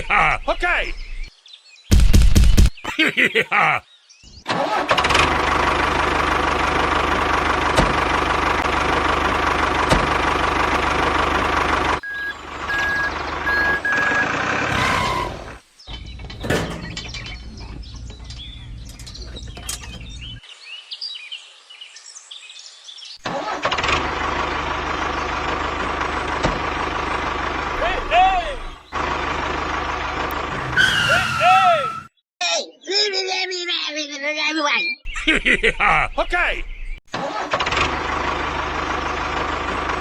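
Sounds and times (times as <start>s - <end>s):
engine running steadily: 4.5s - 15.4s, 23.2s - 30.8s, 37.2s - 40.0s
short beeps: 12.0s - 14.3s.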